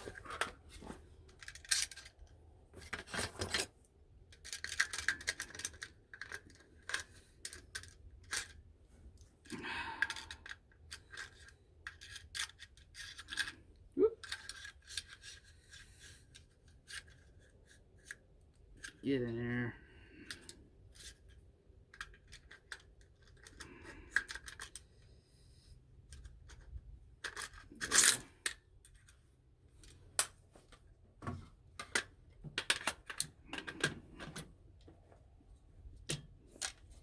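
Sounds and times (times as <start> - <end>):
metallic clicks and scrapes: 0.0 - 8.6, 10.0 - 13.6, 14.2 - 19.0, 20.2 - 24.9, 26.1 - 29.2.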